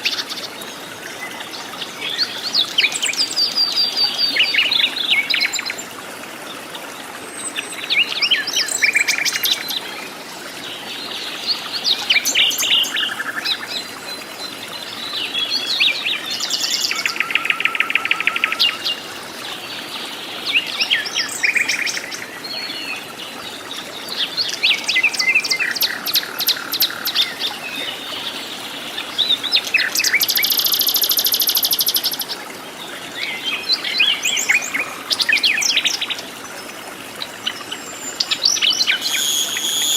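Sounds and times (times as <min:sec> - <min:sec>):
birds singing and calling: 0:07.3 - 0:39.9
buzzy bird trill: 0:38.6 - 0:39.9.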